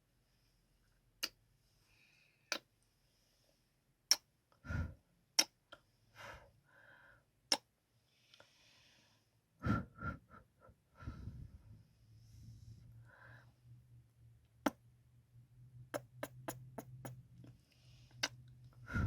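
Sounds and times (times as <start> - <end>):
soft breaths: 0.0 - 3.9, 4.6 - 5.1, 5.7 - 7.3, 7.9 - 14.0, 16.0 - 19.0
lip smacks: 16.0 - 17.2
wet mouth sounds: 16.0 - 17.2.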